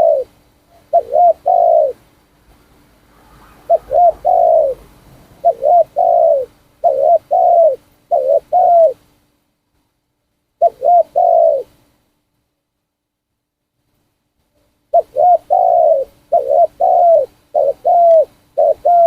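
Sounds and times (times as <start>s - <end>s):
dove cooing: 0.0s - 2.1s, 3.2s - 9.0s, 10.6s - 11.8s, 14.9s - 19.0s.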